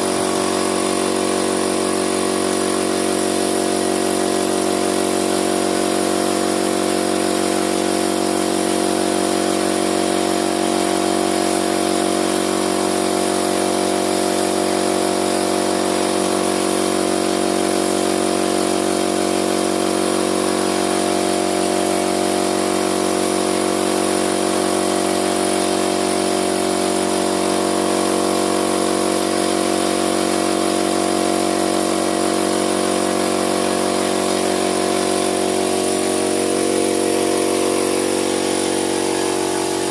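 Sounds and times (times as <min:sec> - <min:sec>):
motor humming with hiss: 0:36.2 - 0:39.9.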